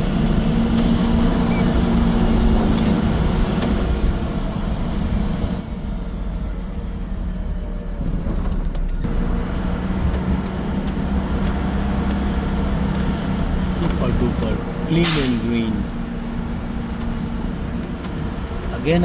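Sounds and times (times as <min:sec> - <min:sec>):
vehicle engine and road noise: 0:00.0 - 0:19.0
wind and tyre hiss: 0:09.0 - 0:19.0.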